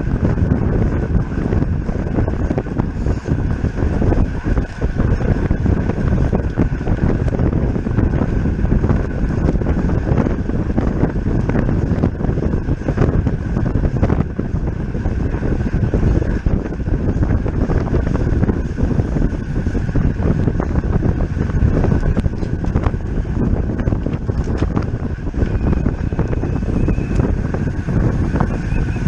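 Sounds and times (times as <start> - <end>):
road and tyre noise: 0.0 - 29.0
wind rushing over microphone: 0.0 - 29.0
faint high whine: 25.4 - 29.0.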